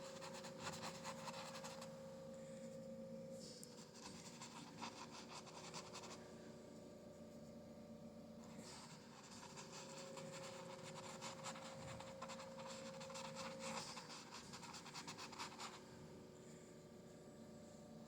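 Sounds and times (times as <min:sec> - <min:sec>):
faint steady hum: 0:00.0 - 0:18.0
paintbrush scratching on canvas: 0:00.2 - 0:01.9, 0:03.9 - 0:06.2, 0:08.6 - 0:15.8.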